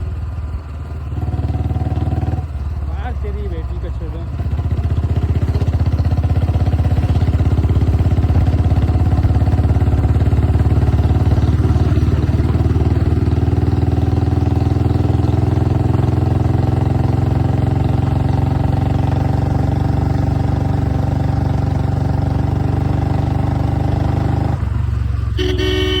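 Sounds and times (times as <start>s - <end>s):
motorcycle exhaust thumping: 4.3s - 23.9s.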